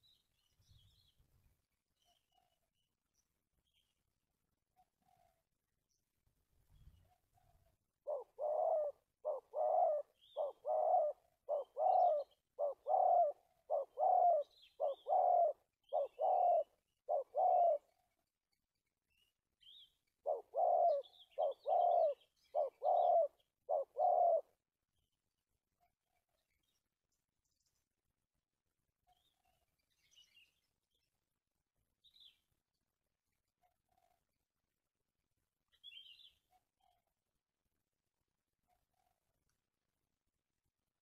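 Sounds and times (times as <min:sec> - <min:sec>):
dove cooing: 0:07.1 - 0:18.0, 0:20.2 - 0:24.6
small birds chirping: 0:08.1 - 0:28.1, 0:35.7 - 0:37.0.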